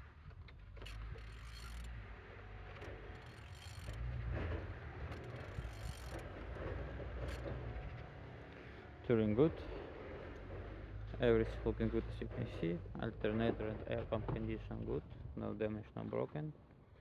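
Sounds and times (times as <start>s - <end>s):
ratchet wrench clicks: 1.2s - 1.9s, 3.2s - 4.0s, 5.2s - 6.2s
mechanical rattling: 2.8s - 4.1s, 5.0s - 7.5s.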